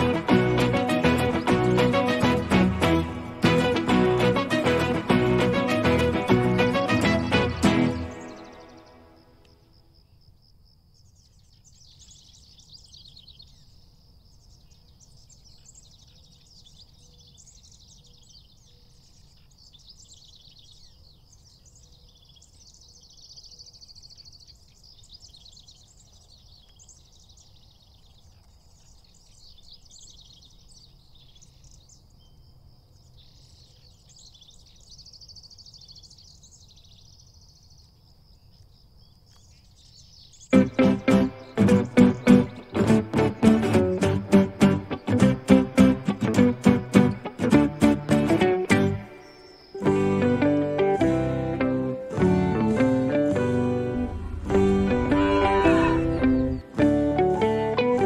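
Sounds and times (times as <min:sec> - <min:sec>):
small songbirds chirping: 0:00.0 - 0:58.0
low steady rumble: 0:53.5 - 0:56.7.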